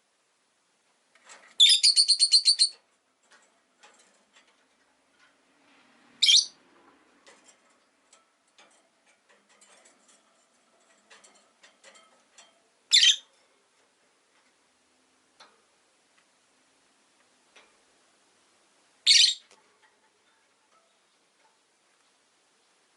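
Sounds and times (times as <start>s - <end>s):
lovebird high calls: 1.6s - 2.8s, 6.2s - 6.6s, 12.9s - 13.3s, 19.0s - 19.5s.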